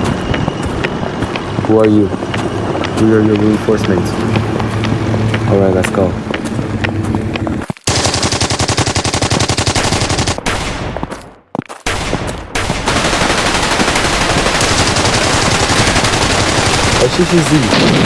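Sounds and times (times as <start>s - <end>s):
machine-gun fire: 7.9s - 11.1s, 11.8s - 18.0s.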